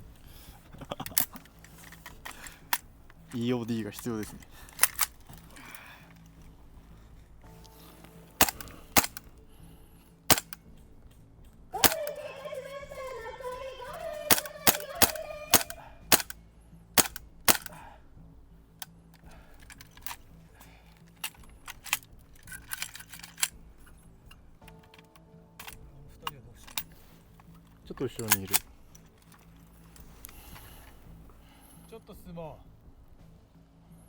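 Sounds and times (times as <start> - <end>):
airsoft gun shots: 8.4 - 9.2, 10.3 - 10.6, 11.8 - 12.2, 14.3 - 16.4, 17.0 - 17.7.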